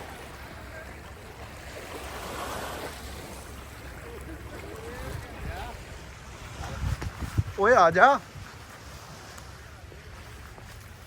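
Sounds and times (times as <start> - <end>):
waves washing on shore: 0.0 - 11.0
wind on microphone: 4.6 - 11.0.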